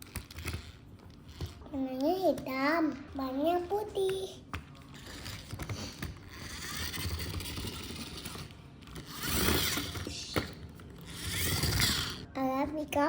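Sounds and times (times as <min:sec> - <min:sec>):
toy truck gears whirring and rattling: 0:00.0 - 0:01.7, 0:04.8 - 0:12.3.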